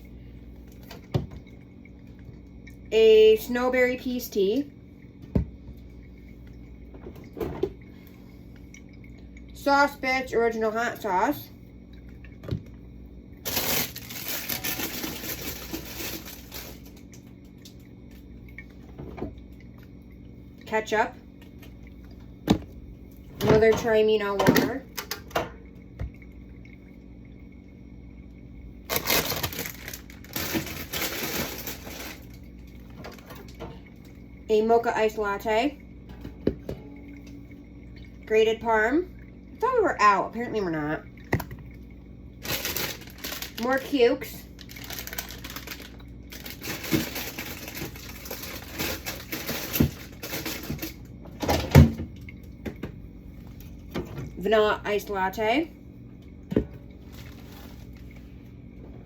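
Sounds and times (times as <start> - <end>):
packaging rustling and clattering: 13.4 - 17.0, 28.9 - 32.4, 42.4 - 43.6, 44.6 - 51.0, 57.1 - 58.2
plastic crinkling: 13.4 - 17.1, 28.9 - 32.4, 42.4 - 51.0, 57.0 - 58.2.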